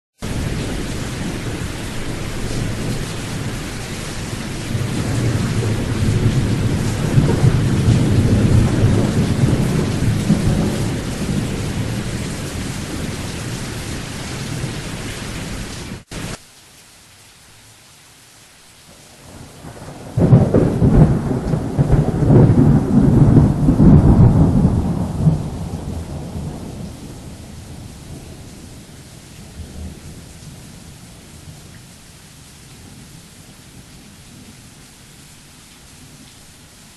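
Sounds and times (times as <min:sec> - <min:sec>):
thunder rolling: 0:00.2 - 0:15.0, 0:19.2 - 0:28.6
rain falling: 0:00.2 - 0:36.9
sharp thunderclap: 0:04.7 - 0:14.8, 0:19.4 - 0:28.5.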